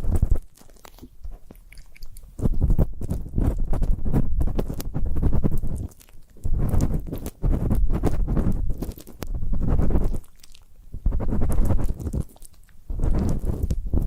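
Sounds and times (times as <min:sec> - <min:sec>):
ear pick scratching microphone: 0:00.0 - 0:14.0.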